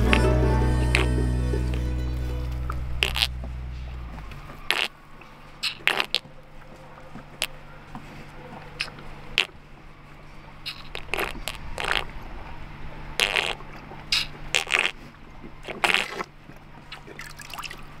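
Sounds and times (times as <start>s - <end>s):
faint low hum: 0.0s - 5.6s.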